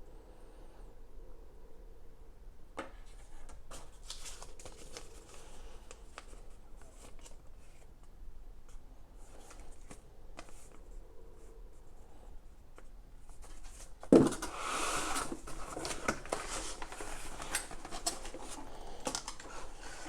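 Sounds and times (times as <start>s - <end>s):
packaging rustling and crinkling: 3.7s - 7.9s, 13.2s - 20.0s.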